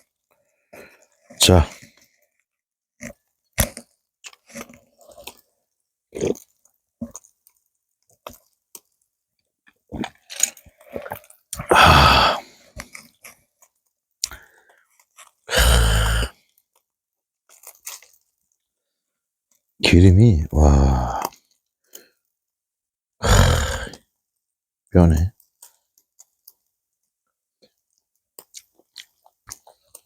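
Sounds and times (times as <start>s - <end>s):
person chewing: 3.0s - 5.5s, 6.1s - 9.0s, 9.6s - 16.6s, 17.5s - 18.3s, 27.7s - 30.0s
loud breathy sounds: 11.7s - 12.5s.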